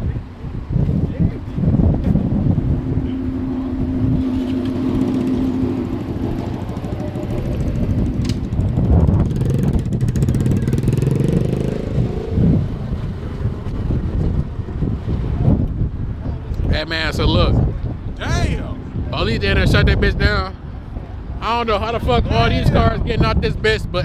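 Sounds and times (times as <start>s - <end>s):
car engines running: 0.2s - 23.4s
car engine revving up: 2.0s - 14.4s.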